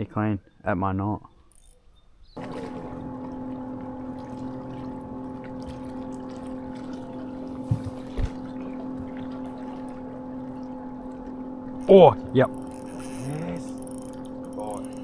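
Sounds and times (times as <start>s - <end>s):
boat motor humming: 0.0s - 15.0s
low thumps: 2.4s - 13.0s.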